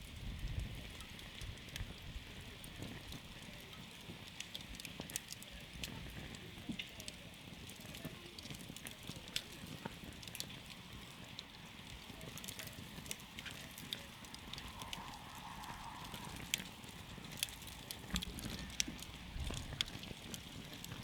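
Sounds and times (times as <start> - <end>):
wood campfire crackling: 0.0 - 21.0.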